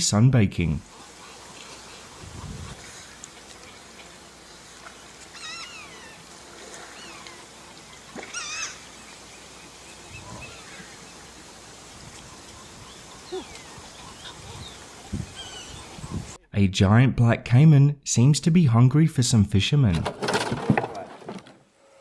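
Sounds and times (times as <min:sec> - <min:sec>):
faint steady hiss: 0:00.0 - 0:16.4
otter calls: 0:00.8 - 0:16.4.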